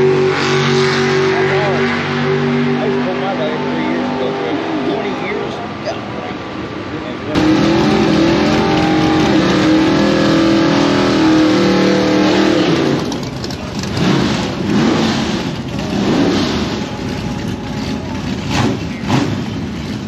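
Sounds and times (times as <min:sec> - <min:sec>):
drag racing engines revving: 0:00.0 - 0:20.0.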